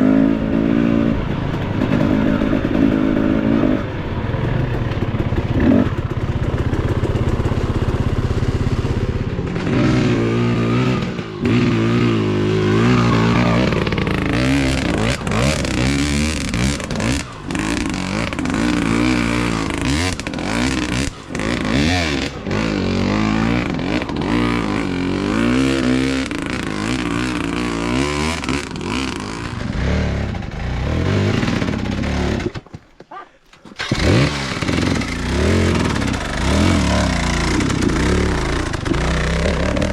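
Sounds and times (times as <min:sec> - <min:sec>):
dirt bike engine revving: 0:00.0 - 0:32.8, 0:33.4 - 0:39.9
knocks and clatter: 0:31.4 - 0:39.9.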